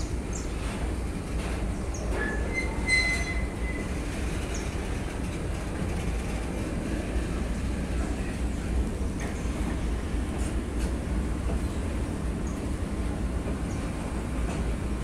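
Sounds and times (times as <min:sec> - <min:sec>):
freight train wagons rumbling: 0:00.0 - 0:15.0
high-pitched wheel squeal: 0:02.2 - 0:03.9.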